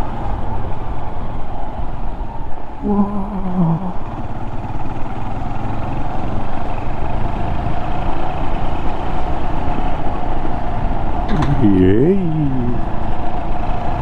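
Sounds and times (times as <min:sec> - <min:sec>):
motorcycle engine running: 0:02.9 - 0:14.0.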